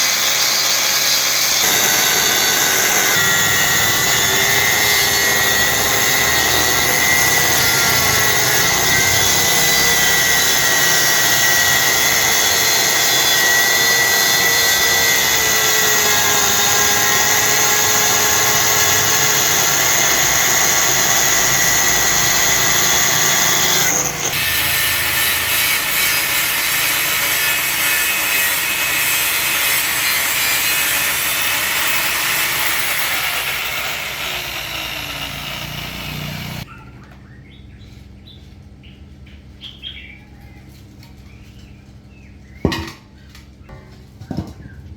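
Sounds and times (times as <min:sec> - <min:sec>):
power tool whining: 0:00.0 - 0:36.7.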